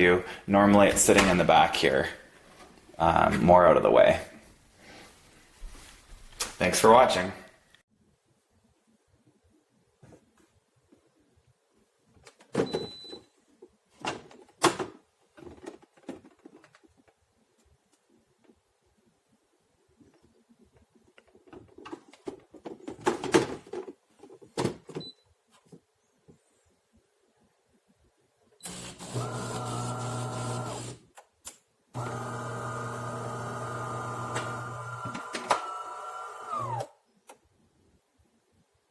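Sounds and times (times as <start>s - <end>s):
knocks and clunks of handling: 14.0s - 17.2s, 21.1s - 26.4s
espresso machine humming: 28.7s - 31.0s, 32.0s - 36.7s.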